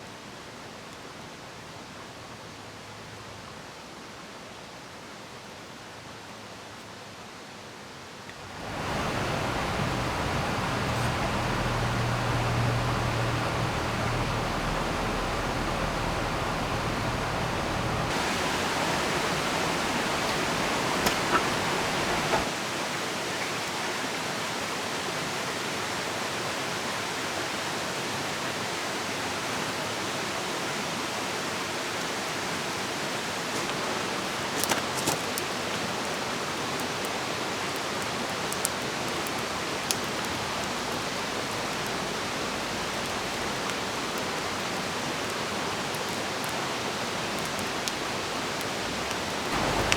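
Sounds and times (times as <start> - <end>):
falling rain: 8.2 - 49.9
river rushing: 8.4 - 49.9
low hum: 8.6 - 22.4.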